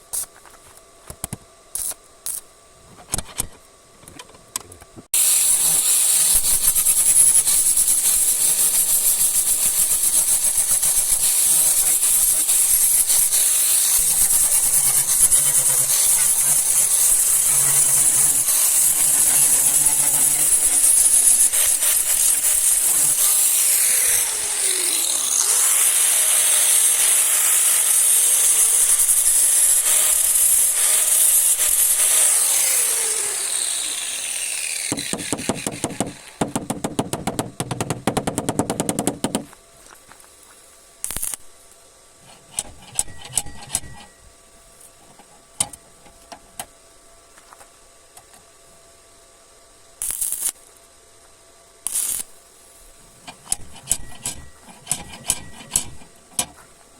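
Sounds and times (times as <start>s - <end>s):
loud hiss with sliding whines: 5.2s - 36.5s, 51.9s - 56.8s
power tool rattling: 5.2s - 39.4s, 53.2s - 56.8s.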